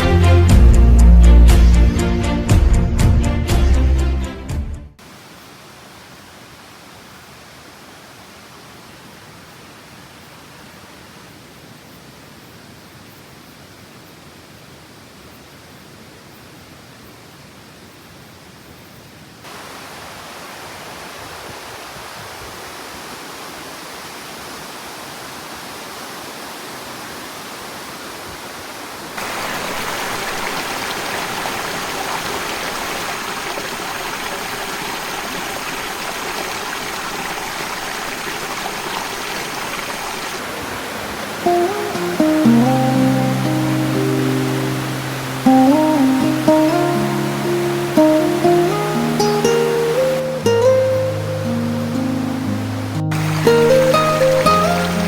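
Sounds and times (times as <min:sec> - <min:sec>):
stream rushing over rocks: 0:05.0 - 0:12.3, 0:19.4 - 0:55.0.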